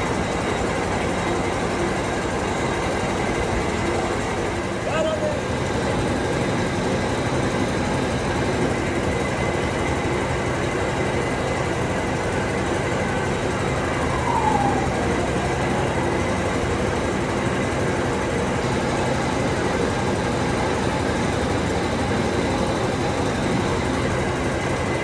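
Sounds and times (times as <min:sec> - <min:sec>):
falling squeal: 0:13.2 - 0:17.1.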